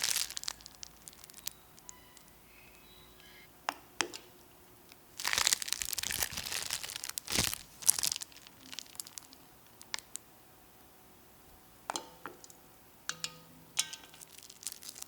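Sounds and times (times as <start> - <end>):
crinkling and crackling handling noise: 0.0 - 2.4, 4.8 - 10.3, 13.8 - 15.0.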